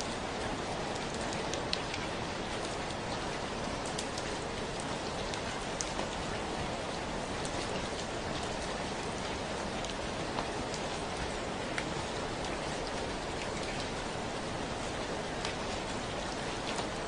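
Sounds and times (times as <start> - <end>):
steady rainfall hiss: 0.0 - 17.0
raindrops ticking: 0.9 - 8.7.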